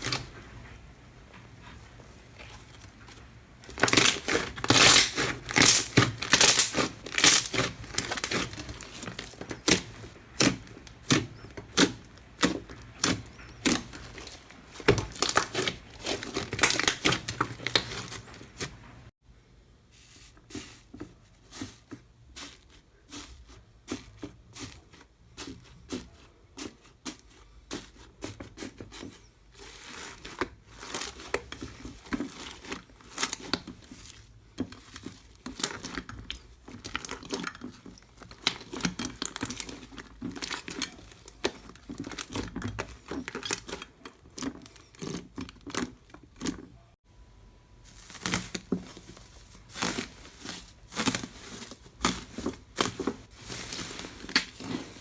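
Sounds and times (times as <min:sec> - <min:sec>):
slime crackling and popping: 0:03.6 - 0:18.8.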